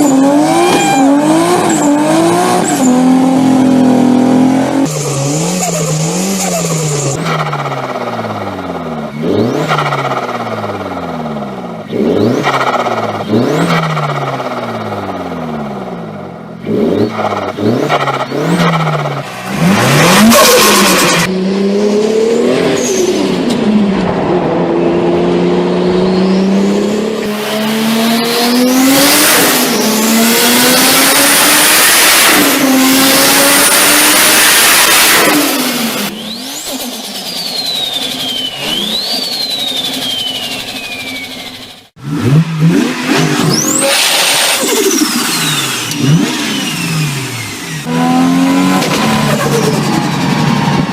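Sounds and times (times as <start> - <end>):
car engines revving hard: 0.0 - 50.9
turbo whistle: 0.4 - 1.8, 36.1 - 41.9.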